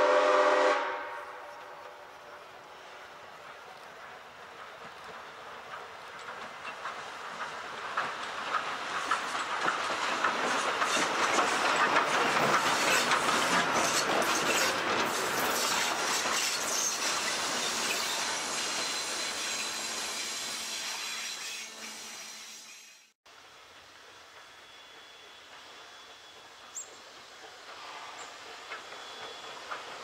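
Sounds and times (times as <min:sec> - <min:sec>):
train wheels clattering over rail joints: 0:03.4 - 0:19.7, 0:24.2 - 0:30.0.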